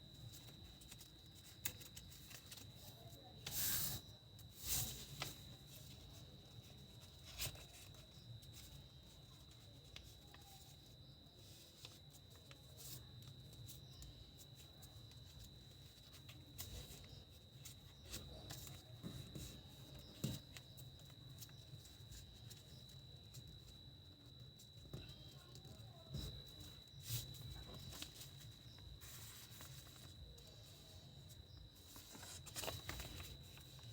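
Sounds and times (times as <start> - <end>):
faint high-pitched whine: 0.0 - 33.9
paper being creased and folded: 31.9 - 33.9.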